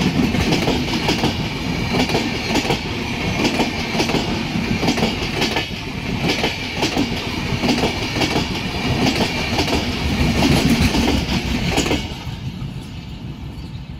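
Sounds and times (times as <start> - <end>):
train wheels clattering: 0.0 - 13.7.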